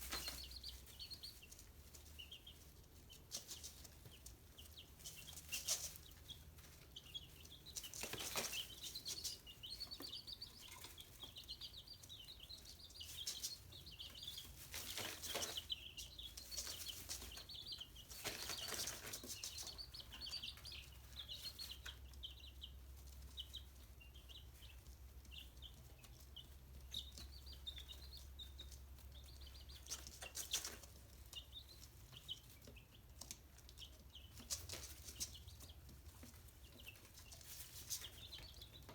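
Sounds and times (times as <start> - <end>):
rustles: 0.0 - 10.0, 12.9 - 22.0
chicks peeping: 0.0 - 38.9.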